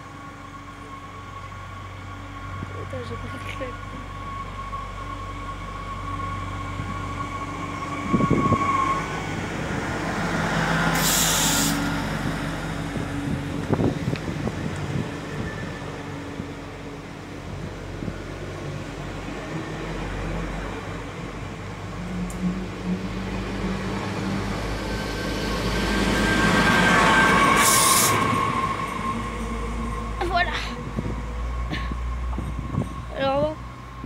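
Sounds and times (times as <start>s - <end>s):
train rumbling past: 0.0s - 34.0s
sharp hiss of air: 10.9s - 11.9s, 27.6s - 28.2s.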